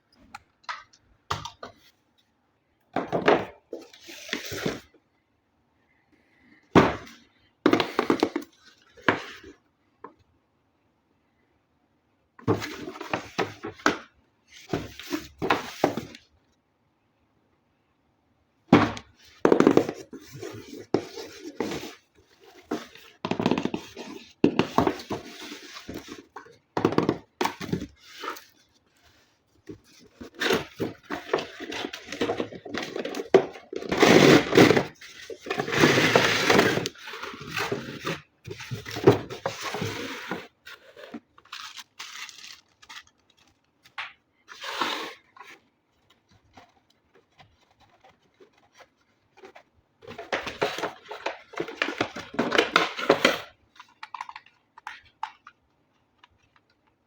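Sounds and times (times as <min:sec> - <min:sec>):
packaging scraping and rustling: 0:19.1 - 0:55.1.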